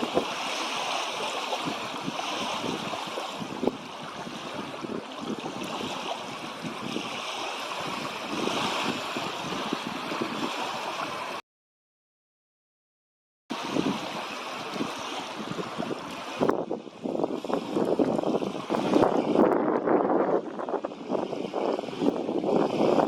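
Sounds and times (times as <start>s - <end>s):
water lapping and splashing: 0.0s - 11.4s, 13.5s - 23.0s
wind rushing: 13.5s - 23.0s.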